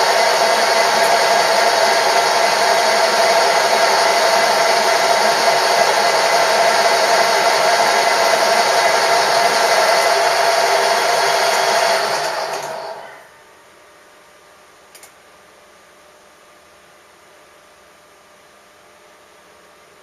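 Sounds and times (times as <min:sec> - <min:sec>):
machine tool motor whine: 0:00.0 - 0:13.3.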